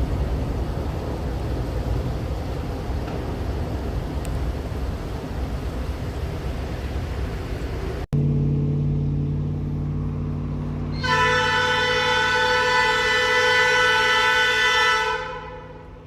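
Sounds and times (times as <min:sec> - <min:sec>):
diesel locomotive engine running: 0:00.0 - 0:16.0
locomotive air horn: 0:10.8 - 0:16.0.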